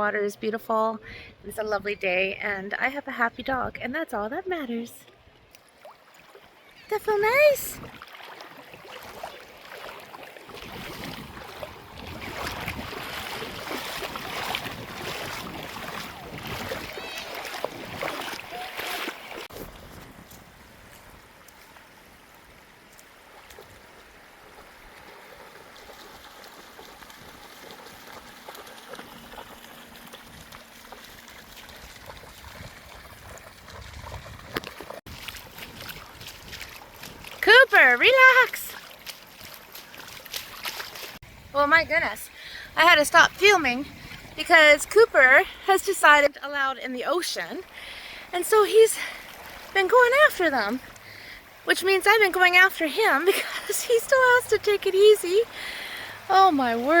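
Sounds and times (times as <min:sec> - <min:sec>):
small waves lapping: 0:05.0 - 0:57.0
wind buffeting microphone: 0:10.6 - 0:18.5, 0:31.4 - 0:37.5, 0:41.2 - 0:45.2.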